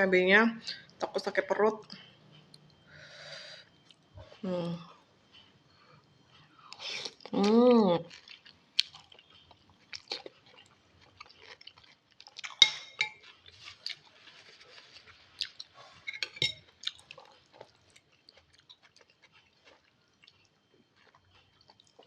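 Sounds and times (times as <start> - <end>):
chewing noodle soup: 6.7 - 22.0.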